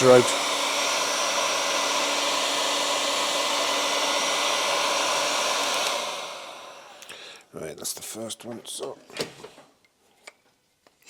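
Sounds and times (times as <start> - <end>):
heat gun blowing: 0.0 - 7.3.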